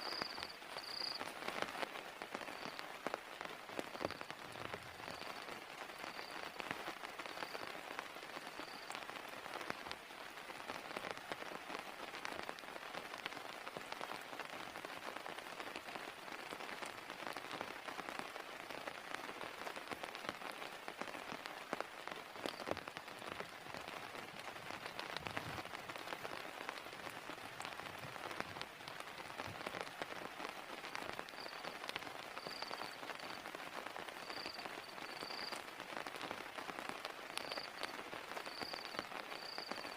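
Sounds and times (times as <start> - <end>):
faint high chirps: 0.0 - 1.3, 34.2 - 35.6
heavy rain falling: 0.0 - 39.9.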